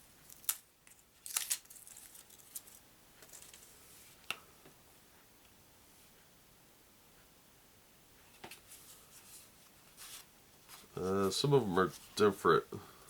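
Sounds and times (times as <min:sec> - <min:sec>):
playing cards rustling and clicking: 0:00.2 - 0:04.4.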